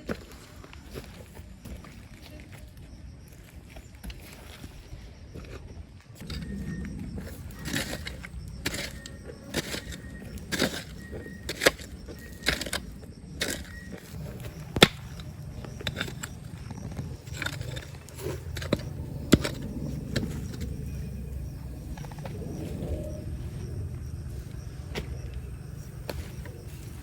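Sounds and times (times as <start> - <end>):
gravel being dug: 4.1 - 27.0
low rumble: 12.0 - 27.0.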